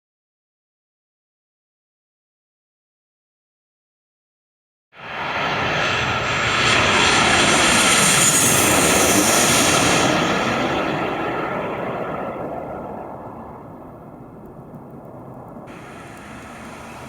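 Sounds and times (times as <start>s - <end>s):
jet airliner passing: 5.0s - 17.0s
high engine whine falling in pitch: 10.1s - 17.0s.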